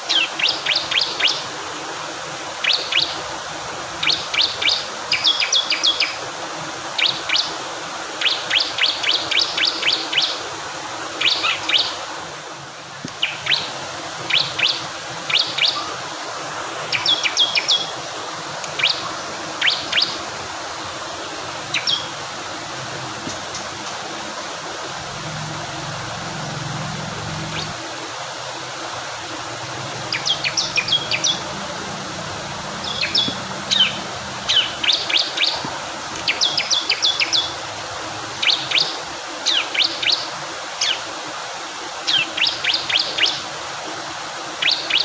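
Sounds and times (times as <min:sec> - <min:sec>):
flowing water: 0:00.0 - 0:45.0
bird chirping: 0:18.7 - 0:20.2, 0:21.6 - 0:22.2, 0:25.1 - 0:27.8, 0:30.0 - 0:35.6.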